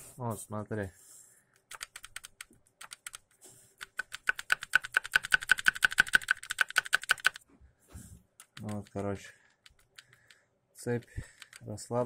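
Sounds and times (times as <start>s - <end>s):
rapid metallic clicking: 3.8s - 7.4s.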